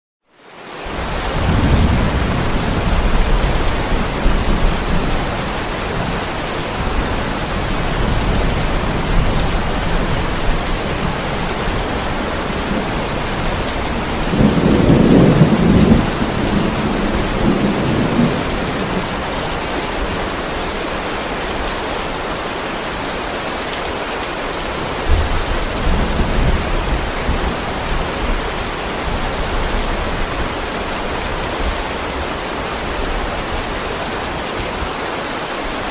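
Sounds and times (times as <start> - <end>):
heavy rain hissing: 0.4 - 35.9
rolling thunder: 1.0 - 20.2, 25.1 - 30.6.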